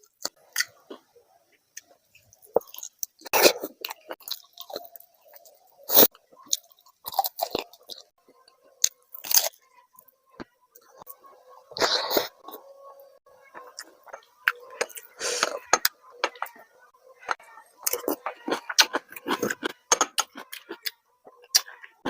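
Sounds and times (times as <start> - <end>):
person chewing food: 0.0 - 9.6, 10.4 - 16.6, 17.2 - 22.0
crunching bites: 8.8 - 9.6, 17.2 - 22.0.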